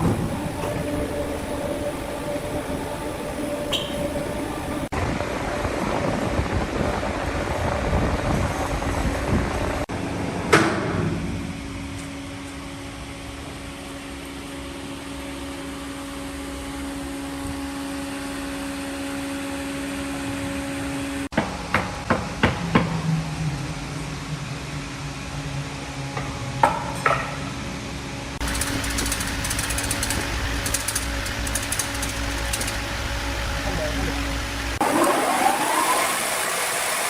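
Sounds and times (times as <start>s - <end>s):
woodworking machinery humming: 0.0s - 5.9s, 28.4s - 37.0s.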